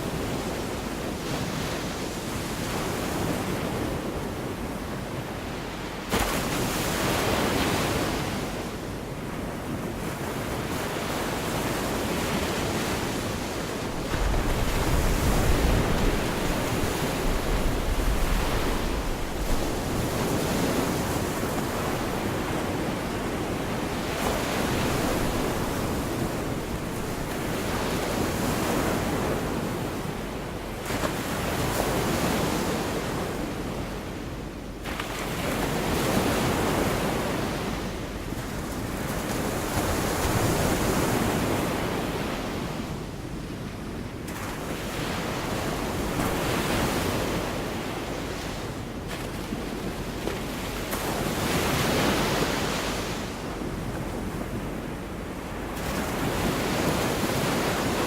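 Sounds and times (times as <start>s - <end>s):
waves breaking on beach: 0.0s - 58.0s
wind rumbling on microphone: 9.9s - 30.2s.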